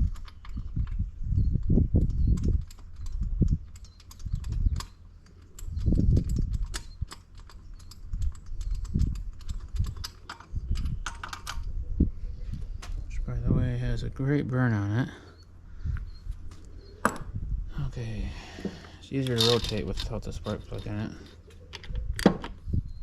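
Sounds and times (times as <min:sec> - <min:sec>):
hand tools clicking and knocking: 0:02.0 - 0:11.7, 0:18.6 - 0:22.6.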